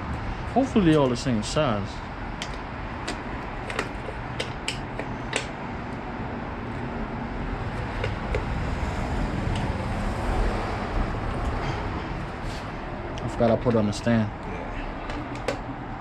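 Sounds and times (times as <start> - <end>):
steady low rumble: 0.0 - 4.3, 5.4 - 16.0
hand tool clicks and taps: 2.4 - 5.6, 7.9 - 8.5, 15.0 - 15.6.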